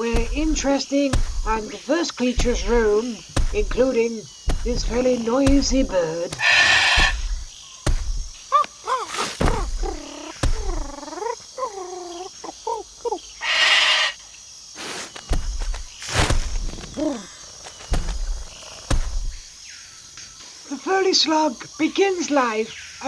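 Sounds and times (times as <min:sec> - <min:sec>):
scattered knocks: 0:00.0 - 0:01.8, 0:02.4 - 0:11.2
bird calling: 0:00.0 - 0:14.2
harsh hissing squawk: 0:04.5 - 0:14.2, 0:14.8 - 0:19.4.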